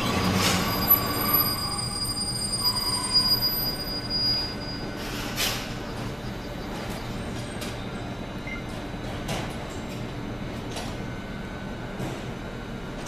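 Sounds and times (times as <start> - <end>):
train wheels squealing: 0.0 - 7.6.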